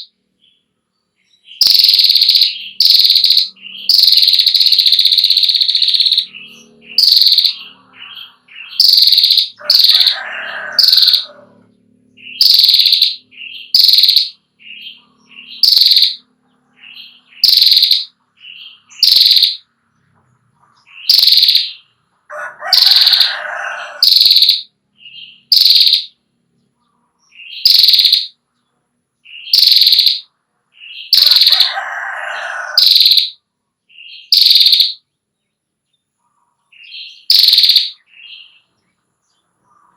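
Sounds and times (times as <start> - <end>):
songbird calling high notes: 1.3 - 11.4, 12.2 - 19.6.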